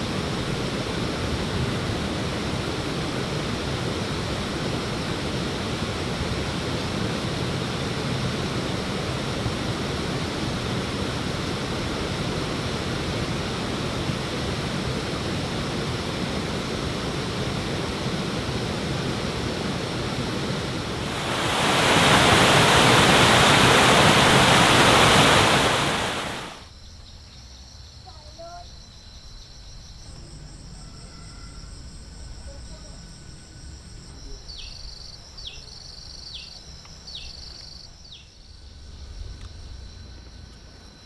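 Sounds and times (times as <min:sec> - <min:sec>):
steady rushing noise: 0:00.0 - 0:26.7.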